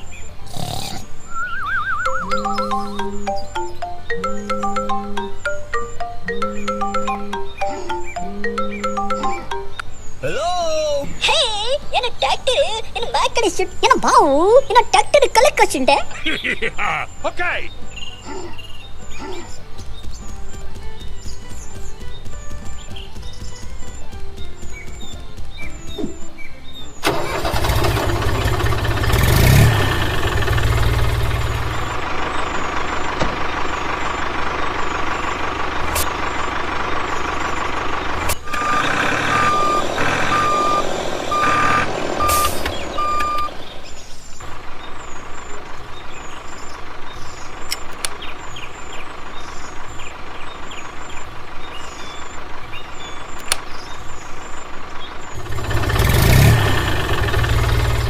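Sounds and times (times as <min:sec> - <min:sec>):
electronic reversing beeps: 0:01.3 - 0:09.7, 0:38.4 - 0:43.6.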